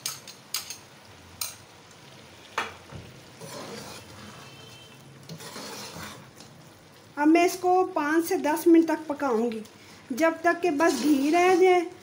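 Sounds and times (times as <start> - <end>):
oil sizzling in a pot: 0.0 - 12.0
ladle stirring: 3.2 - 6.8, 10.6 - 12.0.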